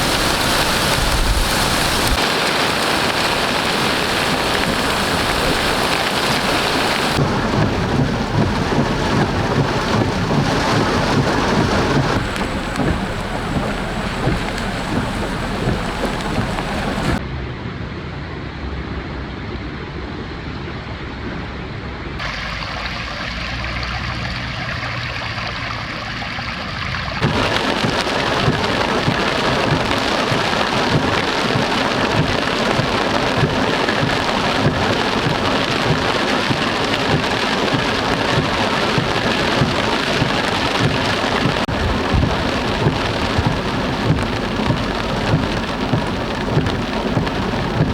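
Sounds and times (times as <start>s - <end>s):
heavy rain falling: 0.0s - 17.2s, 27.2s - 47.9s.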